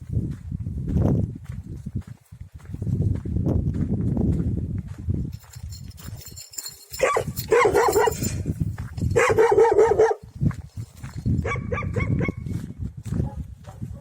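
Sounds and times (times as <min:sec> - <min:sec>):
dog barking: 0:07.0 - 0:08.4, 0:09.1 - 0:10.3, 0:11.4 - 0:12.5, 0:13.2 - 0:14.0.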